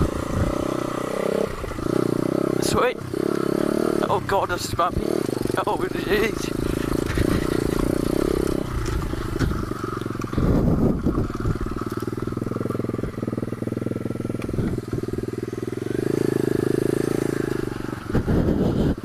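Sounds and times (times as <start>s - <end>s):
motorcycle engine: 0.0s - 19.0s
knocks and clatter from bumps: 6.8s - 9.7s.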